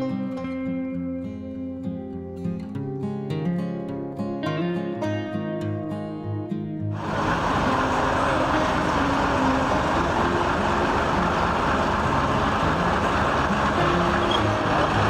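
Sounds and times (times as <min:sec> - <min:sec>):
road noise: 0:07.0 - 0:15.0
vehicle engine rumble: 0:07.0 - 0:15.0.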